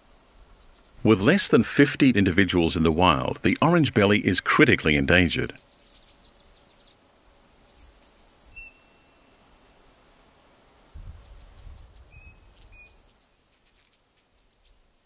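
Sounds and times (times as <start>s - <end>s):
high bird chirps and whistles: 8.5s - 9.3s, 11.1s - 13.9s.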